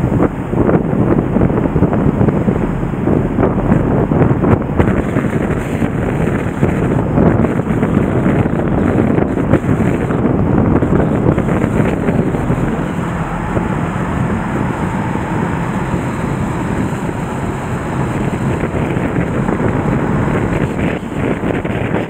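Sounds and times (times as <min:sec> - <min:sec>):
wind buffeting microphone: 0:00.0 - 0:22.0
river water rushing: 0:10.5 - 0:21.6.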